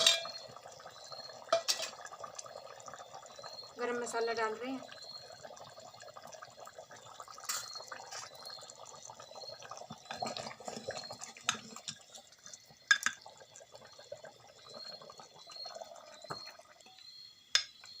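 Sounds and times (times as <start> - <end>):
spoon clinking against a pot: 0.0 - 0.4, 1.5 - 2.0, 12.9 - 13.2, 17.6 - 17.8
curry bubbling and sizzling in a pot: 0.0 - 18.0.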